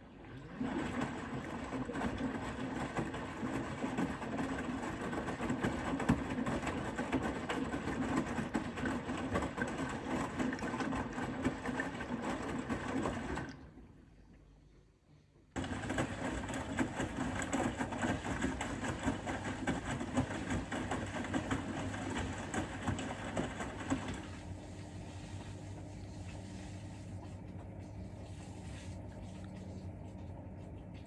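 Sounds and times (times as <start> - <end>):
water sloshing: 0.3 - 13.9, 15.6 - 31.0
washing machine drum turning: 15.6 - 24.4.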